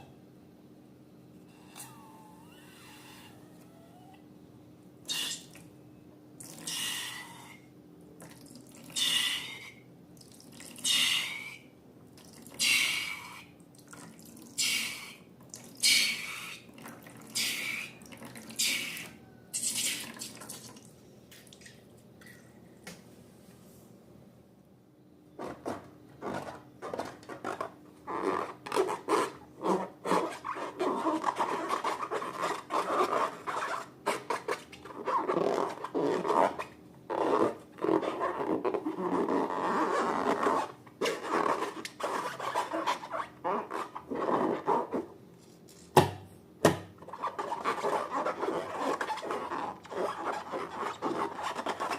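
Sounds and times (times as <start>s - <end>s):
wet liquid squirts: 19.6s - 22.4s.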